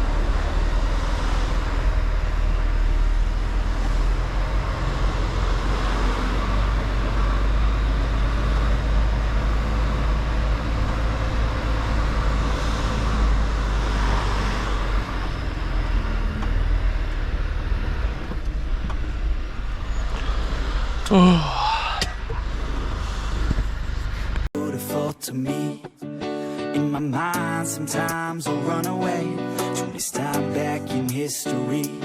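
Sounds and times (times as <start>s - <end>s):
road and tyre noise: 0.0s - 24.5s
truck diesel engine drone: 0.0s - 24.5s.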